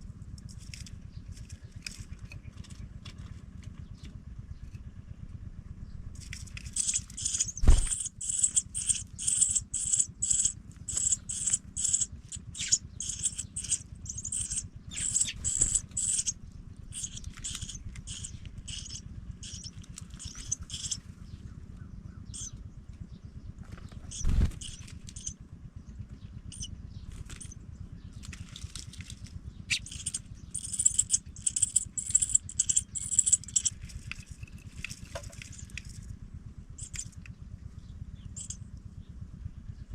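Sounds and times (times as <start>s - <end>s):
low steady hum: 0.0s - 39.9s
nestlings cheeping: 6.2s - 21.6s, 22.2s - 22.6s, 24.0s - 25.4s, 26.5s - 27.6s, 28.2s - 36.0s, 36.8s - 37.2s, 38.2s - 38.6s.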